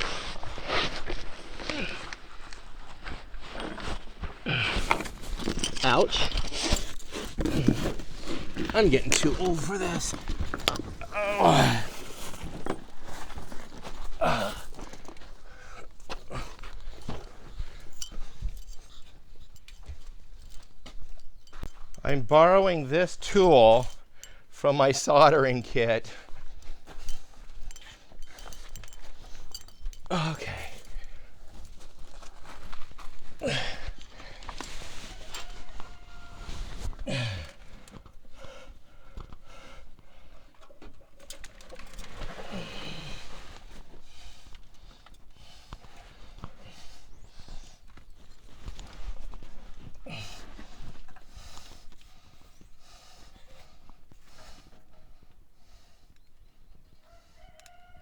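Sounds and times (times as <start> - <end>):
groans of effort: 1.6 - 2.3, 4.4 - 6.8, 7.4 - 13.0, 14.0 - 17.2, 30.0 - 31.4, 33.4 - 38.6, 42.2 - 43.5, 50.0 - 50.7
hand tools clicking and knocking: 4.7 - 24.4, 26.2 - 32.9.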